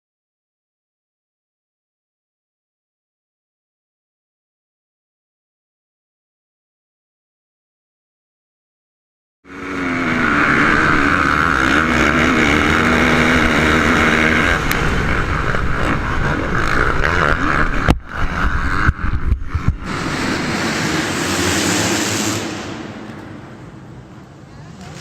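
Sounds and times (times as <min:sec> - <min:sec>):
motocross bike engines revving: 0:09.5 - 0:25.0
wind noise on microphone: 0:13.0 - 0:23.0.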